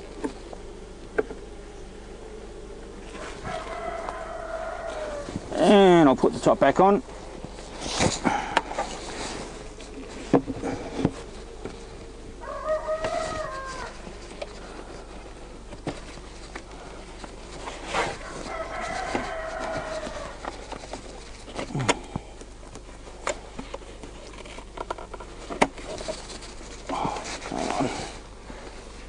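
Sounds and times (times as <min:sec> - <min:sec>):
chicken calling: 0:03.2 - 0:05.7, 0:12.4 - 0:14.1.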